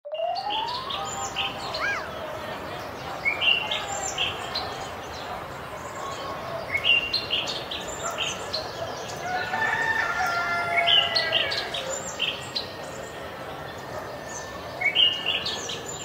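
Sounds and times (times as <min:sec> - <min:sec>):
birds chirping: 0:00.1 - 0:16.0
drawn-out bird call: 0:00.2 - 0:02.3.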